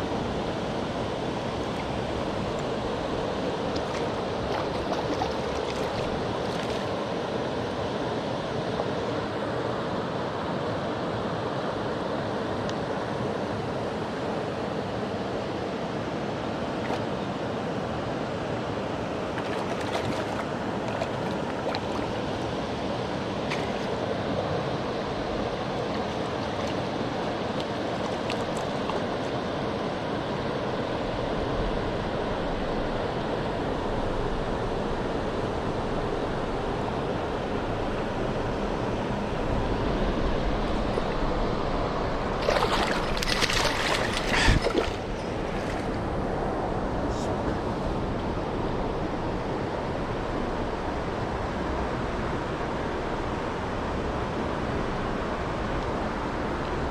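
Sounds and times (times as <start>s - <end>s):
stream water rushing: 0.0s - 11.9s, 15.4s - 33.9s, 34.8s - 47.0s.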